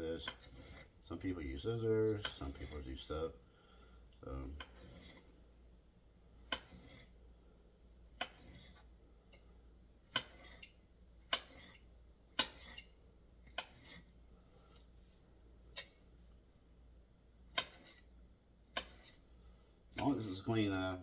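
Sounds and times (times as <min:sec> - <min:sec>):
knife striking cutting board: 0:17.6 - 0:18.0, 0:20.0 - 0:20.3.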